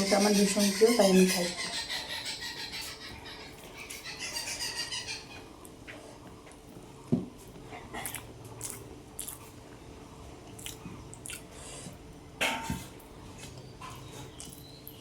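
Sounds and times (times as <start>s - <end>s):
person chewing food: 7.4s - 9.9s, 10.5s - 12.1s, 13.4s - 15.0s.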